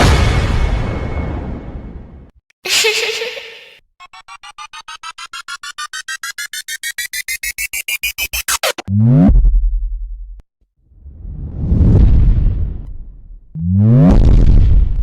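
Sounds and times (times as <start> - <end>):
rising synthesized beeps: 4.0 - 8.9.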